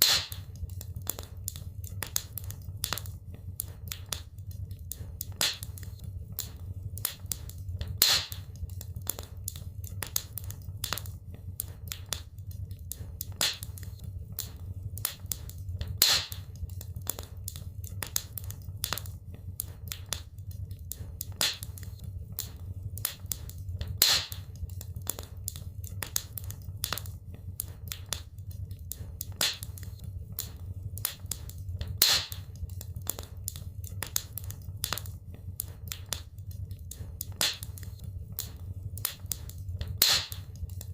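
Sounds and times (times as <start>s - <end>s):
loud fire pop: 0.0s - 0.4s, 8.0s - 8.4s, 16.0s - 16.4s, 32.0s - 32.4s, 40.0s - 40.4s
low rumble of flames: 0.0s - 40.9s
wood fire crackling: 0.0s - 40.9s.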